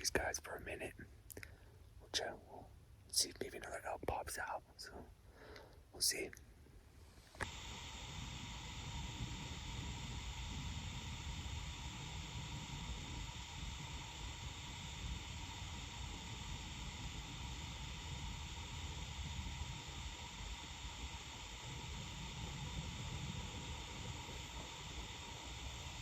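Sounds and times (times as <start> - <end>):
faint steady hiss: 0.0 - 26.0
wind rumble on microphone: 7.4 - 26.0.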